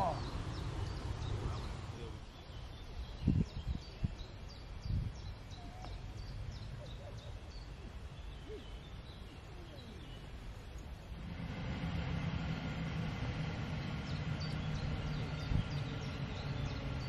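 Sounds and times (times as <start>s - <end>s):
small birds singing: 0.0s - 17.0s
low background rumble: 4.5s - 17.0s.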